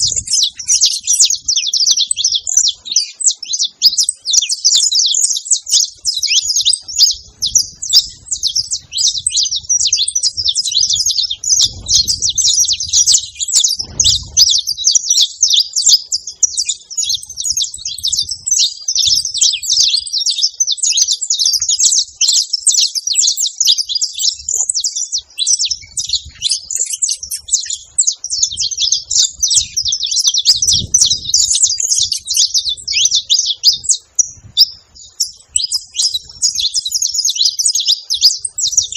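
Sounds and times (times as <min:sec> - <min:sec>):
finch chirping: 0:00.0 - 0:38.9.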